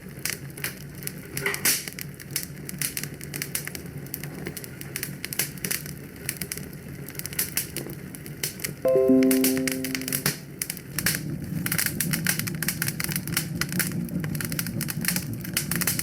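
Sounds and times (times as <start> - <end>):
fire crackling and popping: 0.1 - 8.8, 12.1 - 16.0.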